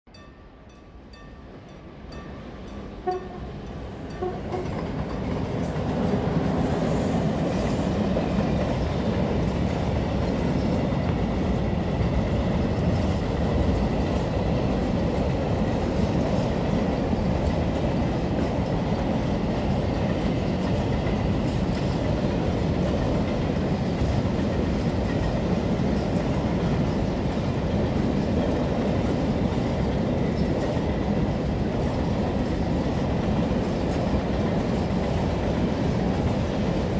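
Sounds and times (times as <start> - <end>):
freight train wheels on rails: 0.1 - 36.9.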